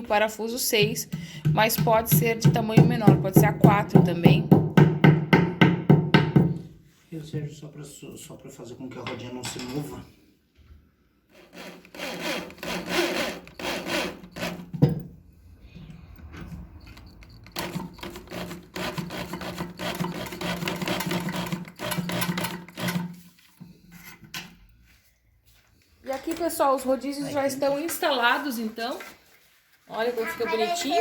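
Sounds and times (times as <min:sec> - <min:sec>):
electric drill grinding: 0:11.4 - 0:14.7, 0:17.2 - 0:23.0.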